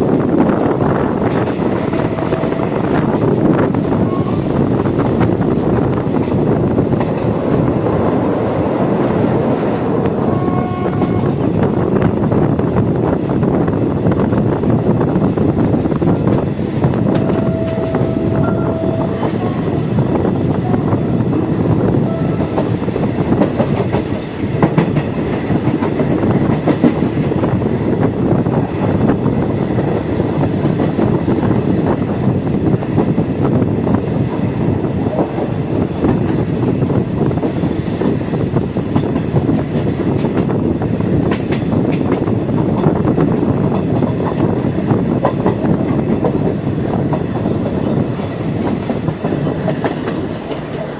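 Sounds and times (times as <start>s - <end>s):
train wheels clattering on rails: 0.0s - 50.9s
short steady tone: 17.2s - 19.7s.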